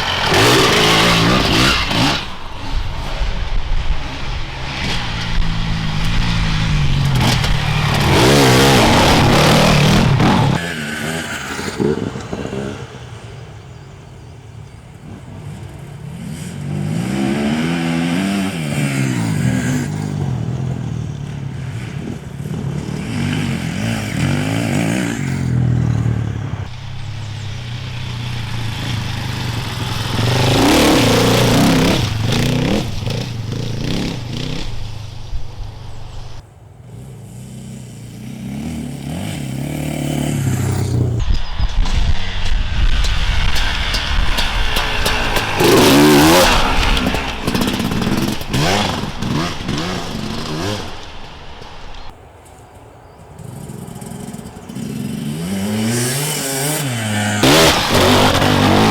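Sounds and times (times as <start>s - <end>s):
motorcycles riding past: 0.0s - 41.3s, 53.4s - 58.9s.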